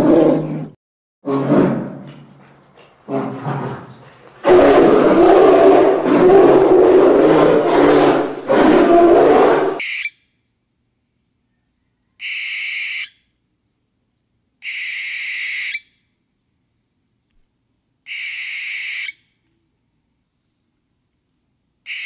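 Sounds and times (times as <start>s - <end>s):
bear growling and roaring: 0.0s - 9.8s
whistled owl calls: 9.8s - 10.2s, 11.5s - 13.3s, 14.6s - 16.0s, 18.0s - 19.4s.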